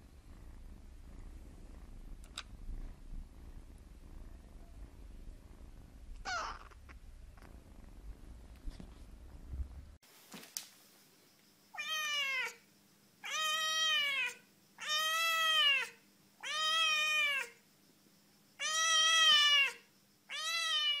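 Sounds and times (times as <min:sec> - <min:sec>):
kitten meowing: 0:06.2 - 0:06.9, 0:13.2 - 0:17.5, 0:18.6 - 0:21.0.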